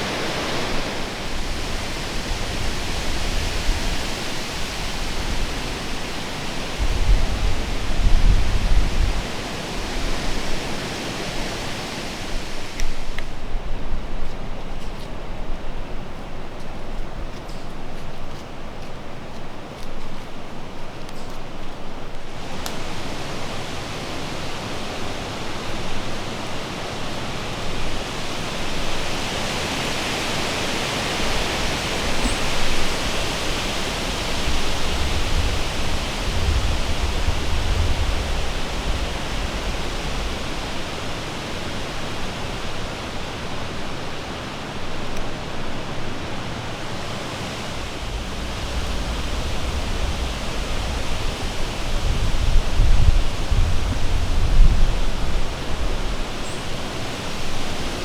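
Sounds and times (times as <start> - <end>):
wind buffeting microphone: 0.0 - 17.4, 22.3 - 58.0
strong wind through trees: 0.0 - 58.0.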